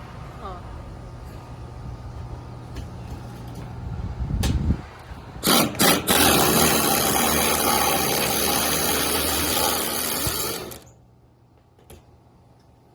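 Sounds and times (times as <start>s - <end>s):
pneumatic impact driver running: 5.4s - 10.9s.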